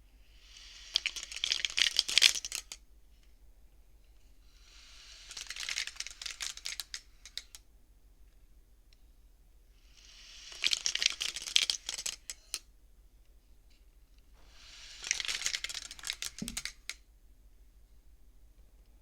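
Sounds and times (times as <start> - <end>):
abacus beads clicking: 0.6 - 2.8, 4.8 - 7.6, 10.2 - 12.6, 14.5 - 17.1.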